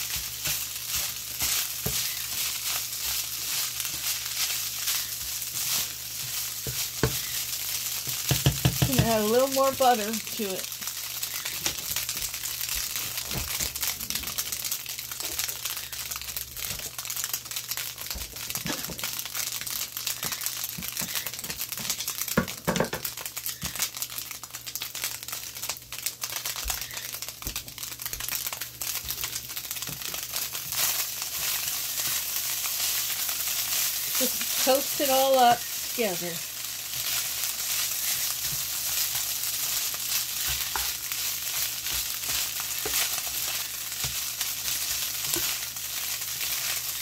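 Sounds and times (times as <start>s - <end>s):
spatula scraping skillet: 0.0s - 10.0s, 30.7s - 47.0s
food frying in butter: 0.0s - 47.0s.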